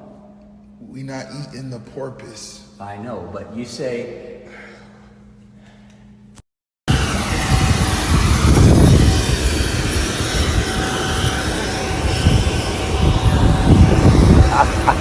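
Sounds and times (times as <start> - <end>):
jet aircraft engine rush: 6.9 - 15.0.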